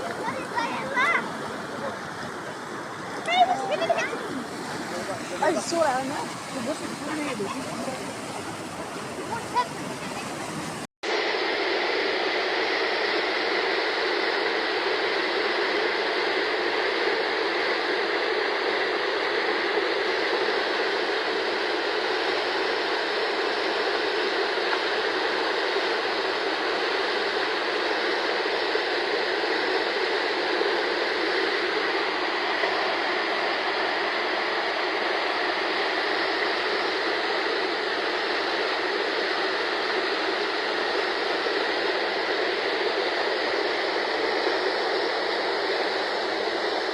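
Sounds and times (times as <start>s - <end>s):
floodwater rushing: 0.0s - 10.9s.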